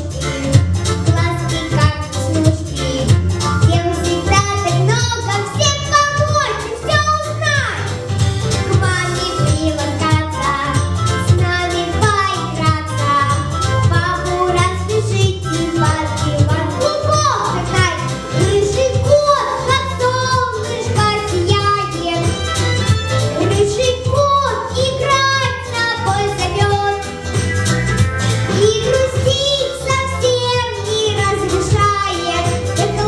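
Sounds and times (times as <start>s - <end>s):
girl singing: 0.0s - 7.9s, 8.6s - 22.4s, 23.4s - 27.1s, 28.5s - 33.0s
recorded backing track: 0.0s - 33.0s.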